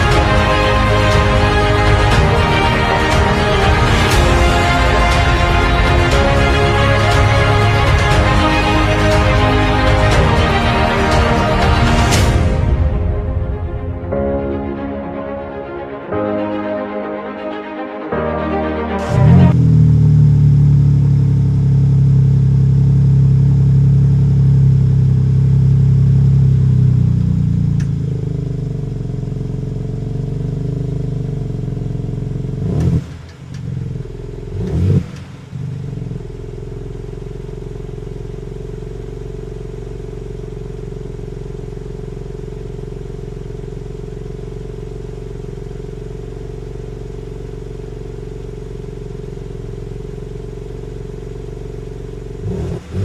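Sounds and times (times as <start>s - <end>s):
engine throttle blips: 19.0s - 53.0s
car engine idling: 19.1s - 53.0s.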